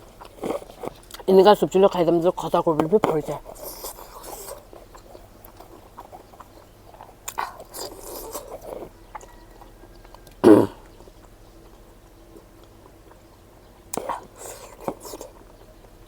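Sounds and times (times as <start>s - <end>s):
person chewing food: 0.0s - 16.0s
mouth clicks: 13.9s - 15.4s.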